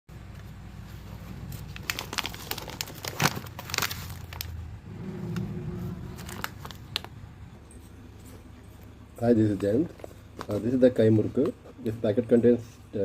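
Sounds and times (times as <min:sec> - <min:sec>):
low steady hum: 0:00.1 - 0:13.0
snack packet crinkling: 0:01.6 - 0:04.6, 0:06.2 - 0:07.2.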